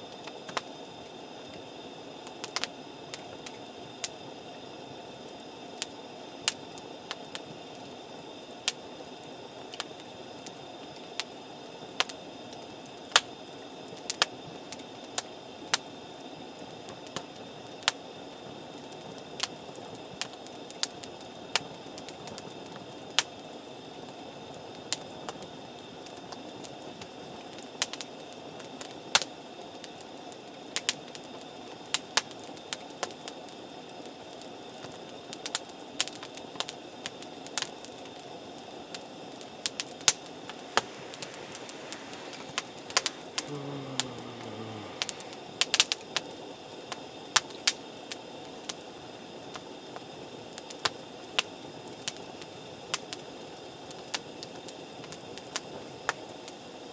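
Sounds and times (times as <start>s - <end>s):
campfire crackling and popping: 39.6s - 46.0s.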